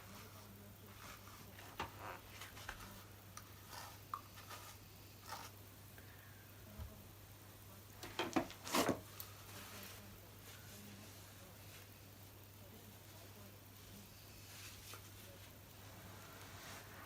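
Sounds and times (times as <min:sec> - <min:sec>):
low steady hum: 0:00.0 - 0:17.0
brush swishing through fur: 0:14.4 - 0:17.0.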